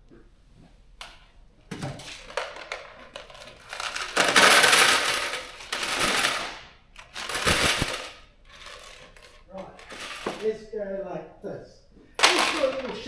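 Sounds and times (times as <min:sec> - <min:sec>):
rattling clatter of bolts poured: 0:02.0 - 0:10.5, 0:12.2 - 0:13.0
bolts and nuts clinking: 0:02.0 - 0:10.6, 0:12.2 - 0:13.0.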